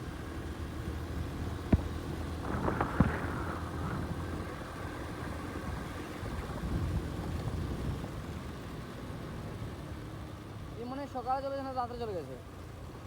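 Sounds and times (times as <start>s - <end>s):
wind on microphone: 2.4s - 8.1s.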